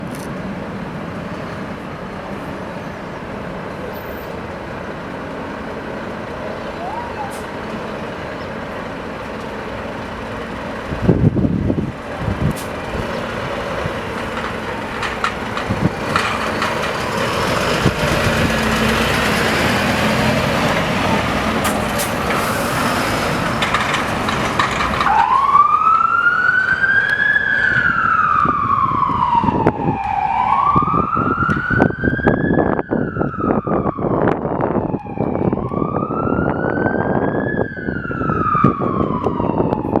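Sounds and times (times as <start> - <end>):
fire engine running: 0.0 - 40.0
siren wailing: 6.4 - 7.8, 25.0 - 40.0.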